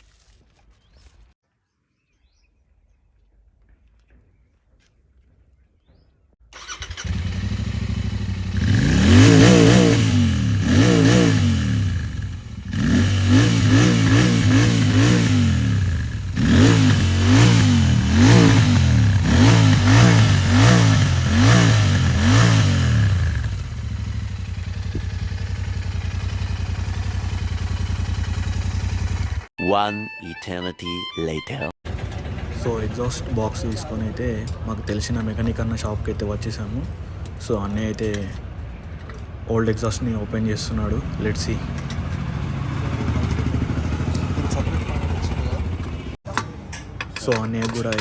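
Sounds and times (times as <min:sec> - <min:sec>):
motorcycle engine revving: 0:06.5 - 0:29.5, 0:31.9 - 0:46.2.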